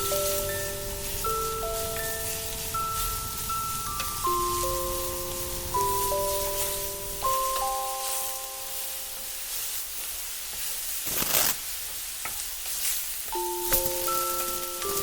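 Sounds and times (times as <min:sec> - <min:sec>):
music box notes: 0:00.0 - 0:09.3, 0:13.3 - 0:15.0
food sizzling in a frying pan: 0:00.0 - 0:15.0.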